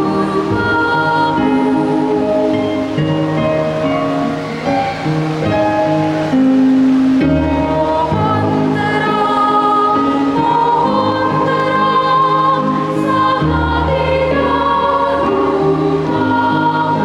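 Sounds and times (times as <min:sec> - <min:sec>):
children's choir singing carol: 0:00.0 - 0:03.4, 0:07.3 - 0:17.0
low instrumental accompaniment: 0:01.4 - 0:11.1.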